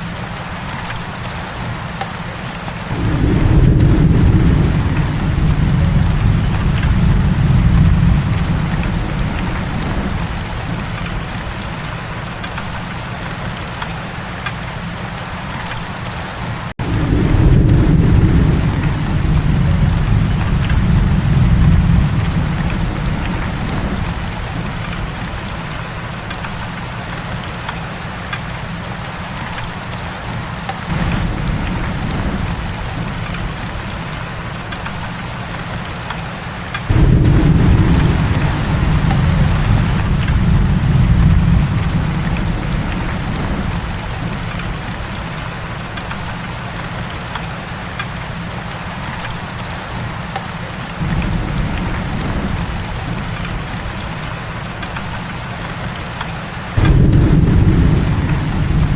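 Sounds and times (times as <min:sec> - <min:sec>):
heavy rain falling: 0:00.0 - 0:58.9
thunder rolling: 0:02.9 - 0:11.8, 0:16.8 - 0:25.9, 0:30.9 - 0:35.0, 0:36.9 - 0:46.4, 0:51.0 - 0:55.8, 0:56.8 - 0:58.9.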